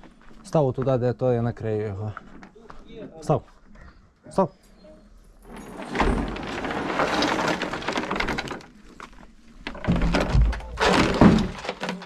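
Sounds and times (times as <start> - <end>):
heavy object scraping on floor: 5.4 - 8.8.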